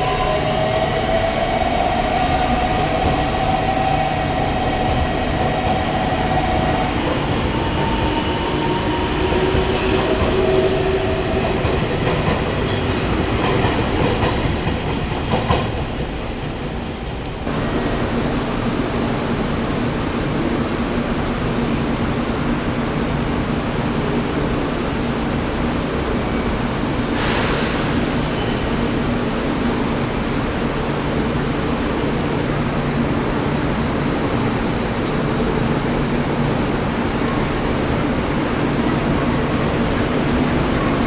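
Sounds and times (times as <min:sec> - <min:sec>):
train hum and rushing: 0:00.0 - 0:41.0
air brake hiss: 0:27.2 - 0:30.8.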